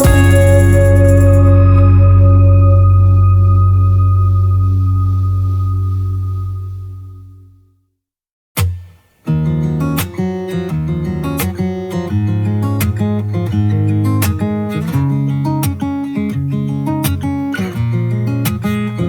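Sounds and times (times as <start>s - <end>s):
pop music with acoustic guitar: 0.0s - 4.6s, 8.6s - 19.0s.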